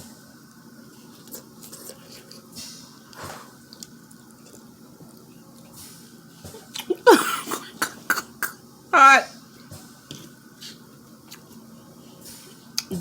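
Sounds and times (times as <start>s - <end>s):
chewing and wet mouth noises: 1.2s - 2.6s.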